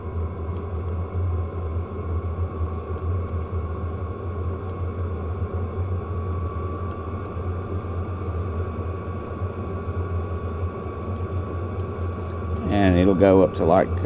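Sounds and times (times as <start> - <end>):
thin steady whine: 0.0 - 14.0
diesel heater rumbling: 7.7 - 14.0.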